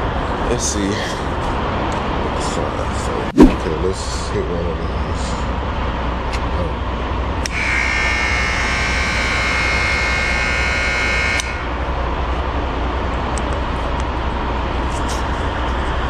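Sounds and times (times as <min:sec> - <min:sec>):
low rumble: 0:01.4 - 0:06.9
door buzzer: 0:07.5 - 0:11.7.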